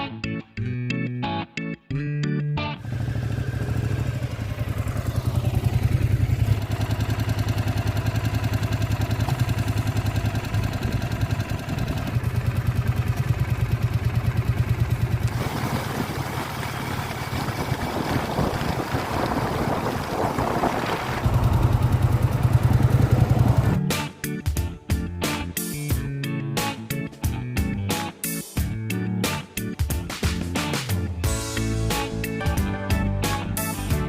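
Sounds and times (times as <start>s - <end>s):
motorcycle engine running: 2.8s - 24.0s.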